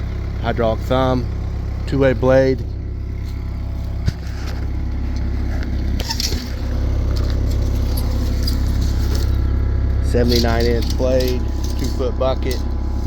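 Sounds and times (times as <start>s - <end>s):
diesel engine idling: 0.0s - 13.0s
rattling: 3.9s - 13.0s.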